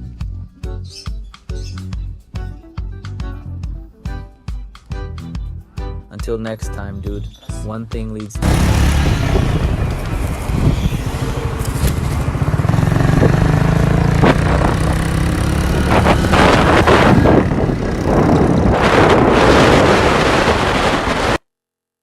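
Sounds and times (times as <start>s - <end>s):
vehicle engine running with surges: 8.4s - 21.4s.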